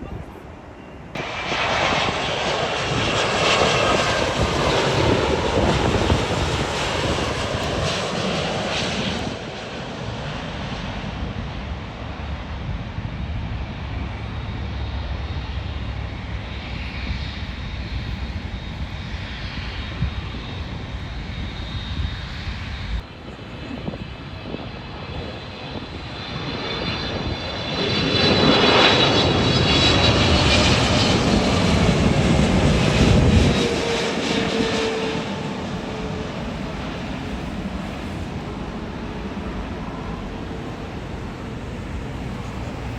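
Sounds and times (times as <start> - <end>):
jet airliner passing: 0.0 - 42.9
jet engine high whine: 0.0 - 42.9.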